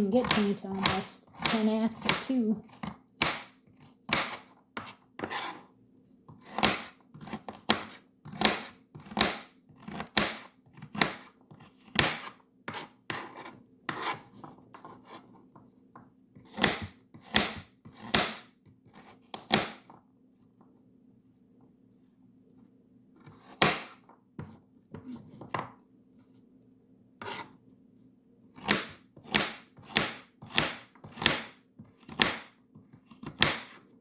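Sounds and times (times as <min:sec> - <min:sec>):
knife chopping carrots on board: 0:00.0 - 0:05.6, 0:06.3 - 0:15.7, 0:16.4 - 0:20.0, 0:23.2 - 0:25.8, 0:28.6 - 0:33.9.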